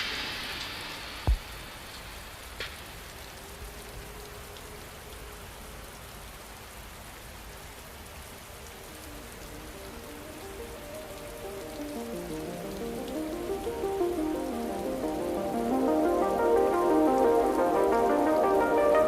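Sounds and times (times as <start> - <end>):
rain hiss: 0.0 - 19.0
soft synth notes: 8.8 - 19.0.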